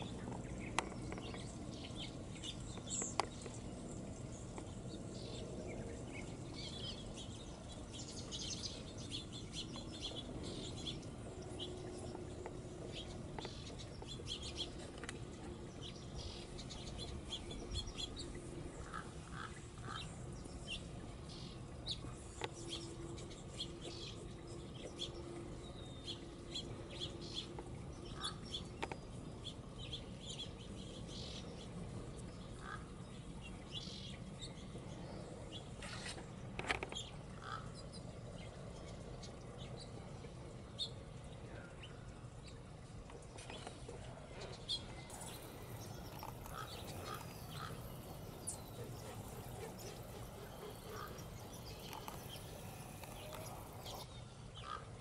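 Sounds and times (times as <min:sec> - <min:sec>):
small birds chirping: 0:00.0 - 0:54.8
faint steady low hum: 0:00.0 - 0:55.0
low background rumble: 0:44.2 - 0:54.7.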